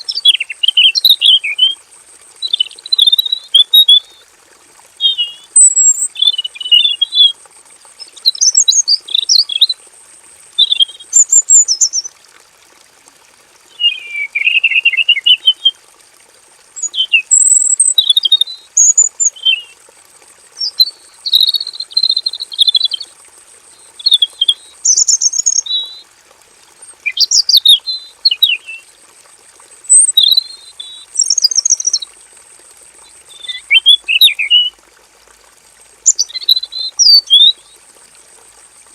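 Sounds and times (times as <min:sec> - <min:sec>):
bird singing high phrases: 0:00.0 - 0:01.8, 0:02.4 - 0:04.2, 0:05.0 - 0:07.4, 0:08.0 - 0:09.8, 0:10.6 - 0:12.1, 0:13.7 - 0:15.8, 0:16.8 - 0:19.8, 0:20.6 - 0:23.1, 0:23.8 - 0:26.0, 0:27.0 - 0:28.9, 0:29.9 - 0:32.1, 0:33.0 - 0:34.7, 0:36.1 - 0:37.8.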